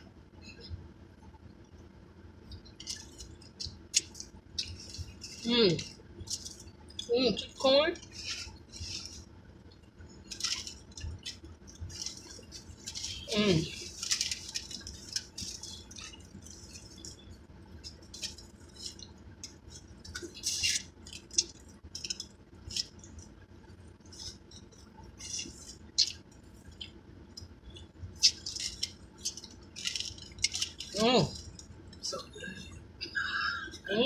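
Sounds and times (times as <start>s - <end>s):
chewing with lip smacks: 2.5s - 23.4s.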